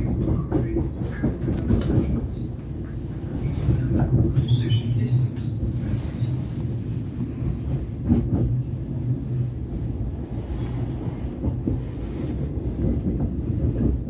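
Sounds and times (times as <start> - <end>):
train carriage low rumble: 0.0 - 14.0.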